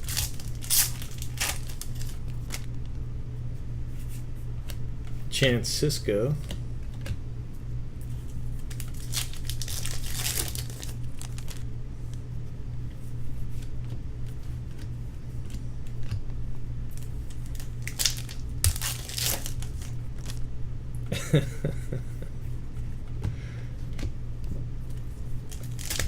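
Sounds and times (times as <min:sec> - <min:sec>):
plastic wrappers crinkling and tearing: 0:00.0 - 0:02.7, 0:08.6 - 0:11.6, 0:16.9 - 0:20.4, 0:25.4 - 0:26.0
steady low hum: 0:00.0 - 0:26.0.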